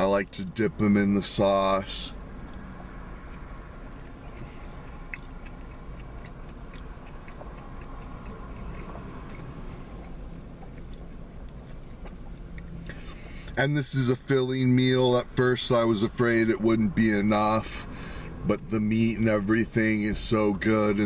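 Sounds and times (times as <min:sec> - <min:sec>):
steady low hum: 0:00.0 - 0:21.0
person chewing and biting food: 0:02.4 - 0:13.6
faint mouth clicks: 0:04.0 - 0:13.6.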